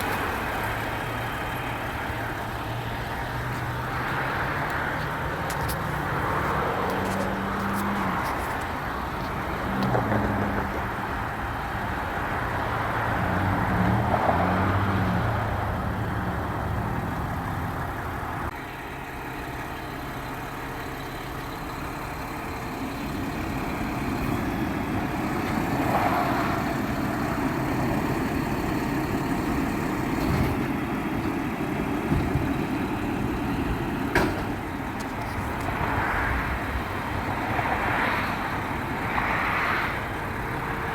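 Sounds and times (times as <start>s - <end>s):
garbage truck engine running: 15.9s - 37.2s.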